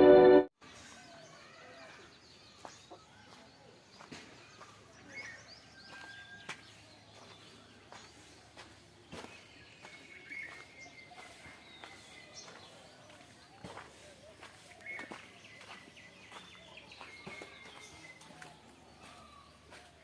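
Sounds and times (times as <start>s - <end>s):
music: 0.0s - 0.5s
birds chirping: 0.6s - 20.0s.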